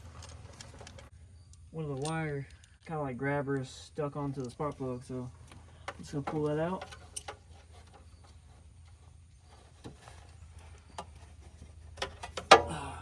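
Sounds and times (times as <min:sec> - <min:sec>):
hand tools clicking and knocking: 0:04.4 - 0:09.0, 0:09.8 - 0:12.9.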